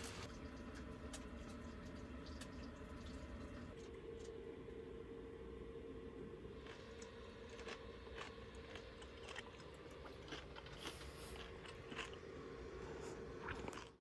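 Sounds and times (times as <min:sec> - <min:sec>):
steady low hum: 0:00.0 - 0:14.0
person chewing crisp bacon: 0:06.6 - 0:14.0.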